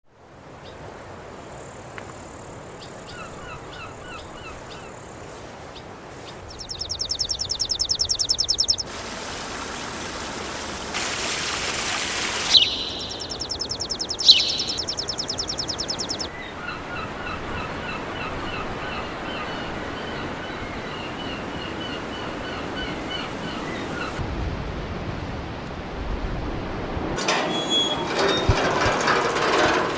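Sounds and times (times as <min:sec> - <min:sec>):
birds chirping: 0:02.3 - 0:08.9, 0:12.2 - 0:24.2.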